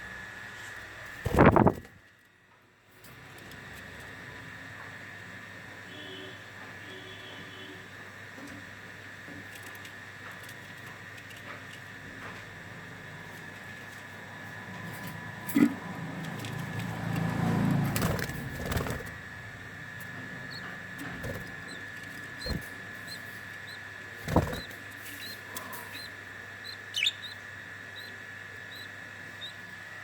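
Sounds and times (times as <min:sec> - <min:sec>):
birds rustling and fluttering: 0:00.6 - 0:02.3, 0:09.3 - 0:26.2
faint high chirps: 0:24.6 - 0:29.6.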